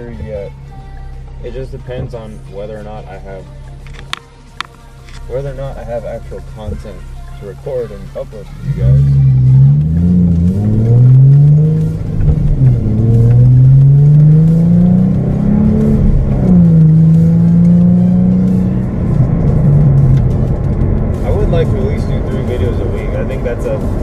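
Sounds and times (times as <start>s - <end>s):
car engine accelerating: 5.2s - 24.0s.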